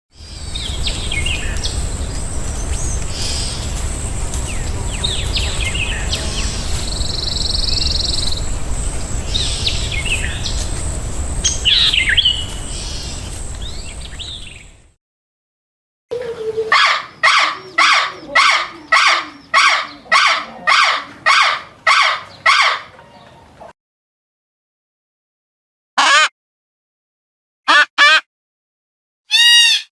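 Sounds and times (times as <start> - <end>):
loud evenly spaced bird calls: 0.2 - 14.9, 16.1 - 23.6
outdoor background hiss and rumble: 0.2 - 14.9, 16.2 - 23.7
small birds chirping: 0.2 - 14.9, 16.1 - 23.6.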